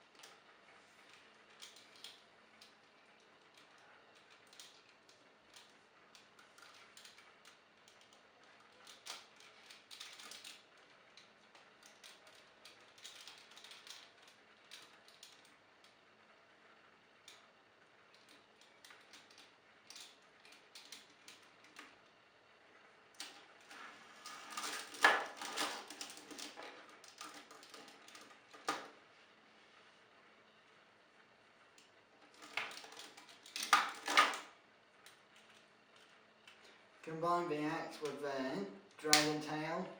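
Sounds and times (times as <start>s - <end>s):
plastic toy parts clicking: 3.5s - 10.6s, 11.8s - 15.5s.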